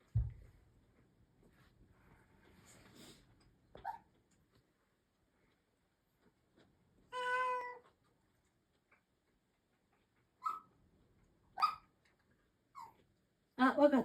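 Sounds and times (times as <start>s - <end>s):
cat meowing: 7.1s - 7.9s.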